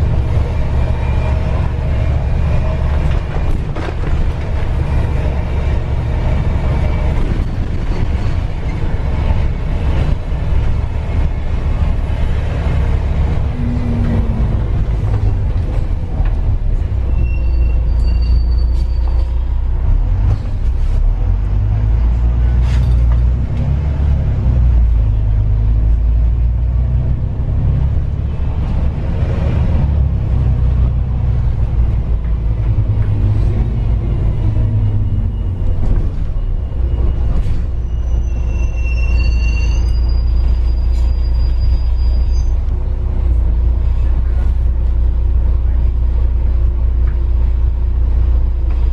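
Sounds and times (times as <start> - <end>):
vehicle low rumble: 0.0 - 48.9
brief high-pitched squeals: 17.1 - 19.4, 34.8 - 42.7.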